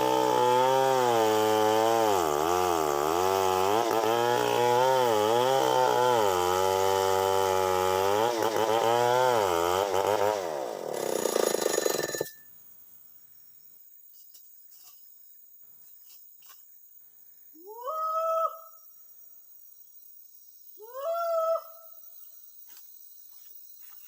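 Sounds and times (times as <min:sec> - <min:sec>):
chainsaw cutting at high revs: 0:00.0 - 0:12.4.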